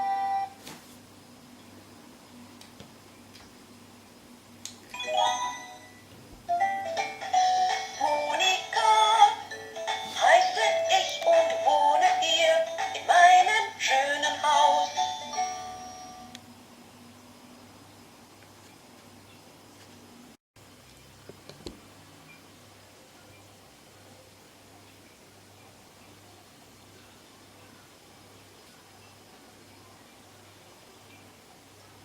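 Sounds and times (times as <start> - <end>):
electronic toy song: 6.5 - 13.5
synthesized voice singing: 7.8 - 15.0.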